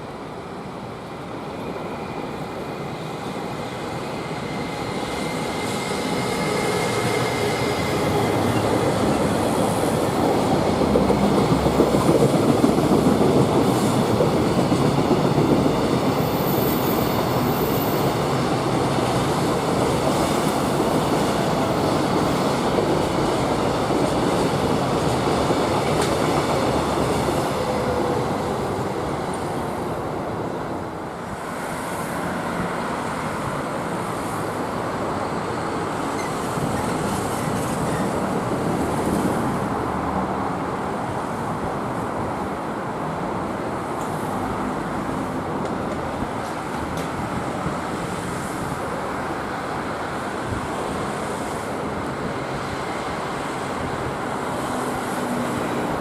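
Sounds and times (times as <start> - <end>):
freight train wagons rumbling: 5.2 - 28.9.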